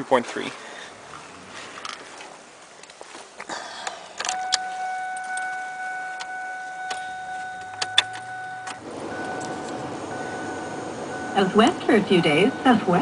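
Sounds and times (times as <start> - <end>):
keys jangling in ignition: 4.1 - 9.8
electronic warning tone: 4.3 - 13.0.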